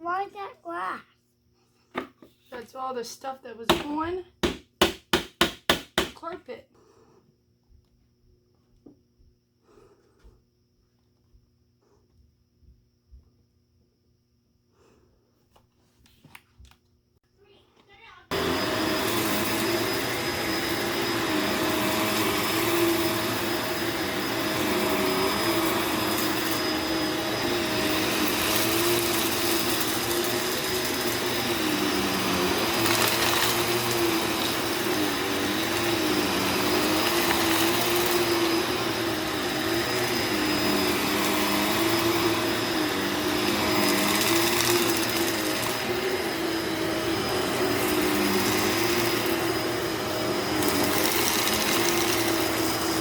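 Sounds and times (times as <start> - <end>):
vacuum cleaner running: 18.2 - 53.0.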